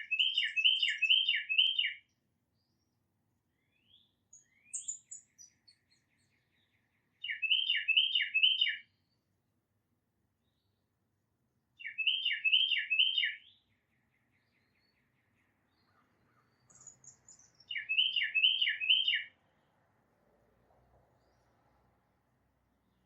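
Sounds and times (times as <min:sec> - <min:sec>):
titmouse whistled song: 0:00.0 - 0:02.0, 0:03.9 - 0:05.9, 0:07.3 - 0:08.8, 0:11.8 - 0:13.4, 0:16.7 - 0:19.3
faint bird chips and trill: 0:00.0 - 0:02.9, 0:03.6 - 0:09.3, 0:11.8 - 0:19.4.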